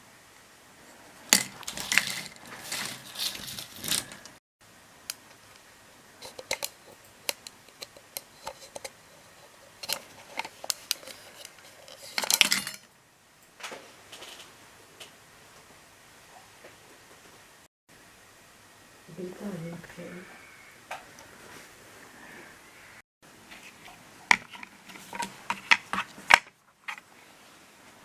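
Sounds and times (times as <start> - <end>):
small hard objects clattering: 1.3 - 4.4.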